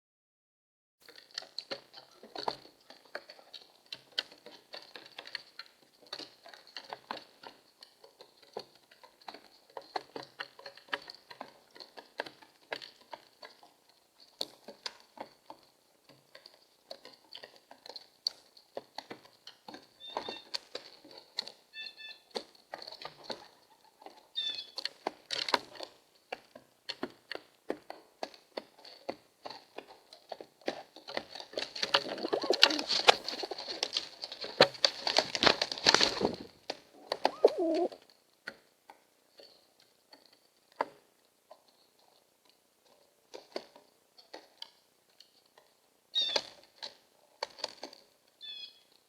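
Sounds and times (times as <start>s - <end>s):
pecks and scrabbling: 28.2s - 38.0s
pigeon wings flapping: 31.8s - 37.9s
pigeon cooing: 32.0s - 33.2s, 36.1s - 38.0s
jay harsh calls: 37.0s - 37.9s.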